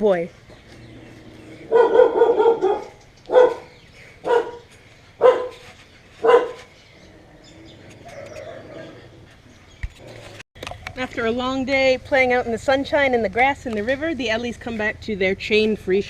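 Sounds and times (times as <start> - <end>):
dog barking: 1.7 - 5.6, 6.2 - 6.7.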